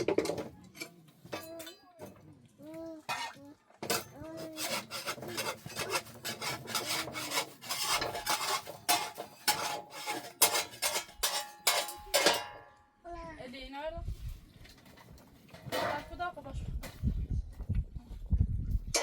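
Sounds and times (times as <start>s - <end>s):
rhythmic rasping scrapes: 4.2s - 12.1s.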